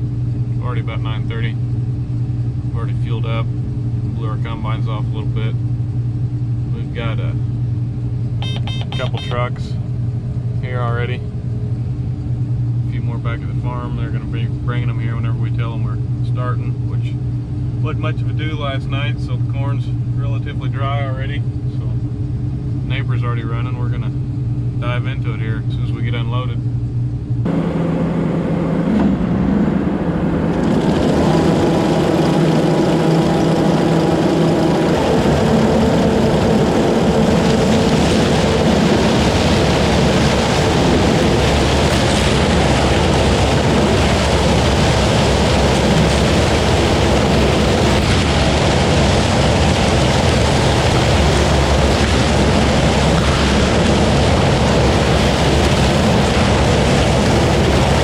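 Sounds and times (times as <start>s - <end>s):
combine harvester engine hum: 0.0s - 58.0s
rush of machinery noise: 27.4s - 58.0s.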